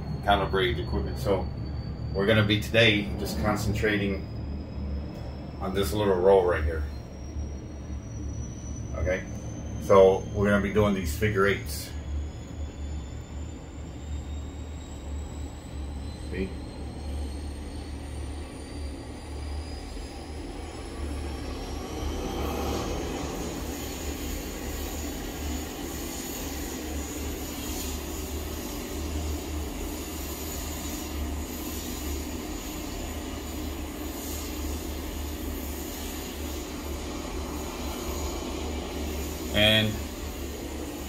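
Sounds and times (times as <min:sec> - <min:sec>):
low rumble: 0:00.0 - 0:17.1
aircraft turbine whine: 0:00.0 - 0:41.0.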